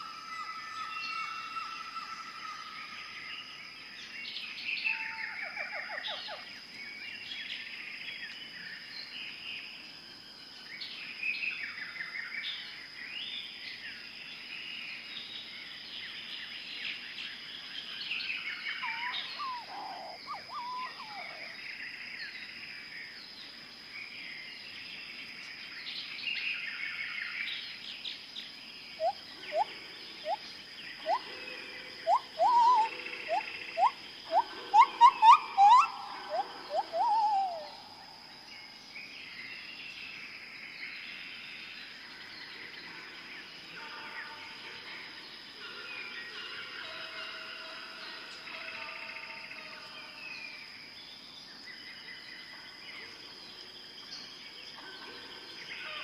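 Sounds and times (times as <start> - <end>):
birds chirping and trilling: 13.3 - 47.4, 48.1 - 56.0
loud rising bird calls: 18.8 - 21.6, 31.0 - 31.3, 32.0 - 38.1.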